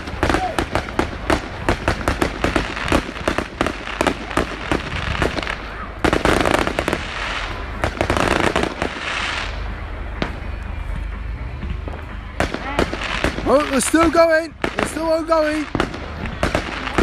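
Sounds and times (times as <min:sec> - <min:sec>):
fireworks cracking and popping: 0:00.0 - 0:17.0.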